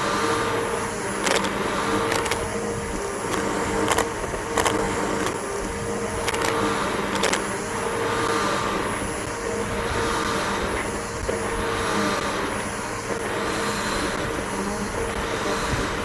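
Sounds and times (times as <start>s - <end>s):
vacuum cleaner motor running: 0.0s - 16.0s
sharp clicks and ticks: 1.2s - 7.5s.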